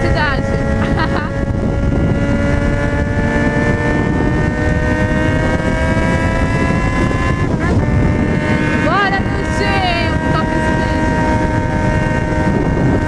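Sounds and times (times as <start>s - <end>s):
motorcycle engine accelerating: 0.0s - 13.0s
wind rumble on microphone: 0.0s - 13.0s.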